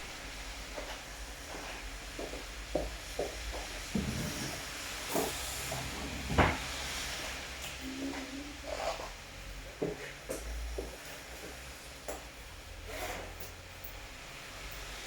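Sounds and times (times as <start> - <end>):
rain hiss: 3.5 - 7.8.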